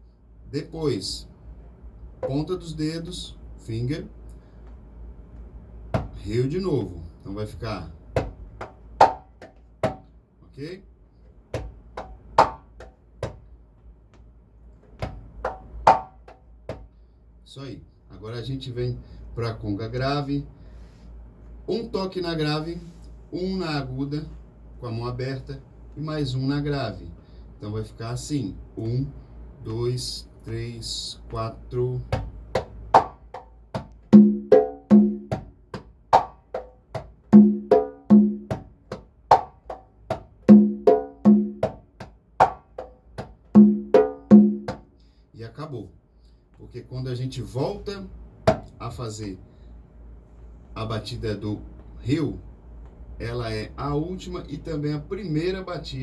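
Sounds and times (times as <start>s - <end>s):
conga played by hand: 6.0s - 6.2s, 8.2s - 10.1s, 11.5s - 13.4s, 14.9s - 16.9s, 32.1s - 44.9s, 48.5s - 48.7s.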